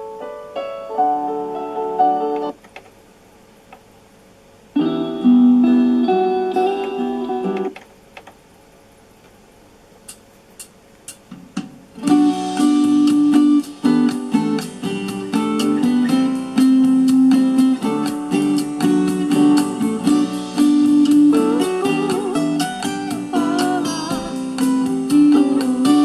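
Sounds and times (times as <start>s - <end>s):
guitar intro: 4.7s - 7.8s, 11.9s - 26.0s
song playing through boombox speakers: 12.0s - 26.0s.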